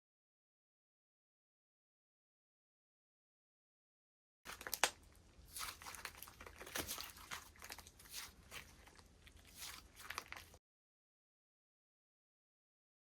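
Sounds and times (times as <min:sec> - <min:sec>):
slime crackling and popping: 0:04.5 - 0:10.6
slime squelching: 0:04.5 - 0:10.6.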